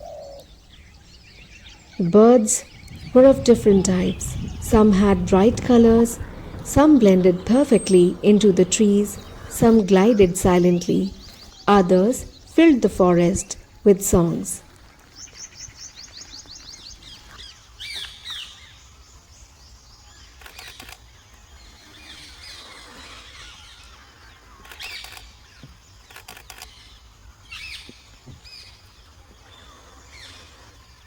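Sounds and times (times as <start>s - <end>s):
birds calling and chirping: 0.0s - 31.0s
low outdoor rumble: 1.8s - 14.7s.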